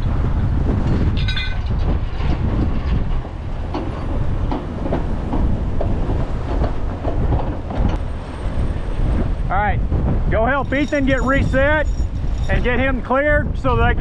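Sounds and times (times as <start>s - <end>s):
wind buffeting microphone: 0.0s - 14.0s
metal clanks and rattles: 0.8s - 8.7s.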